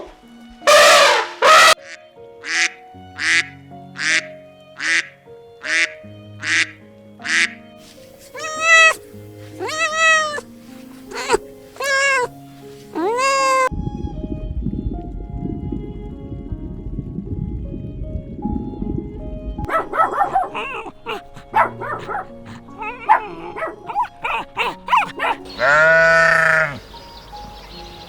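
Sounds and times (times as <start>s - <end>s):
background music with held notes: 0.0s - 28.0s
duck quacking: 0.7s - 7.6s, 8.3s - 9.0s, 9.6s - 10.4s, 11.1s - 12.3s, 13.0s - 13.7s, 19.7s - 26.8s
cat meowing: 8.2s - 12.3s, 12.9s - 13.7s, 20.3s - 26.8s.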